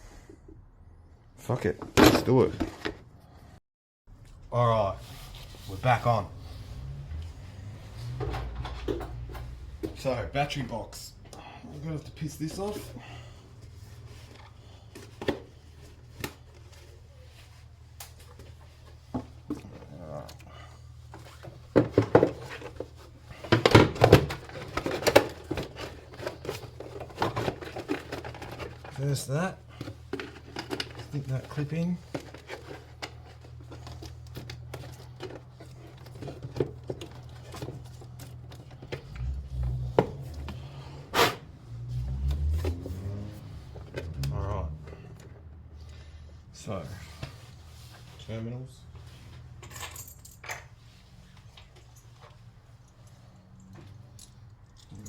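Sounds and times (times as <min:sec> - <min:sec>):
clicks and knocks of parts: 0:21.1 - 0:29.1, 0:29.7 - 0:40.6.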